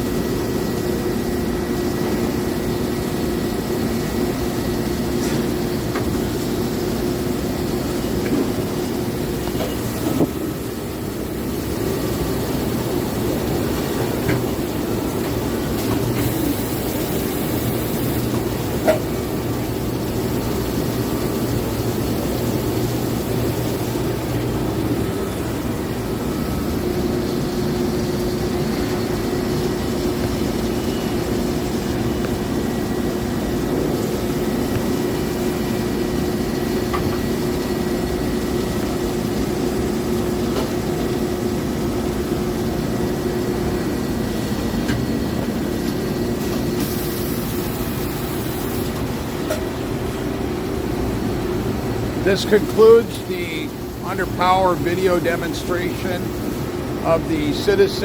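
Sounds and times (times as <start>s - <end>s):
lathe running: 0.0s - 40.1s
high steady whine: 0.0s - 58.0s.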